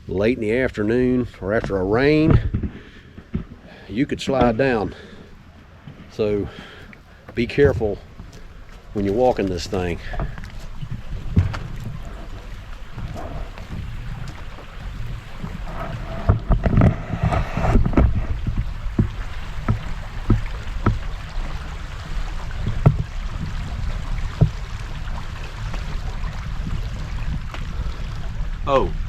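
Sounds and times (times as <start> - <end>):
footsteps on wooden boards: 1.4 - 27.8
wind rumble on microphone: 7.4 - 29.0.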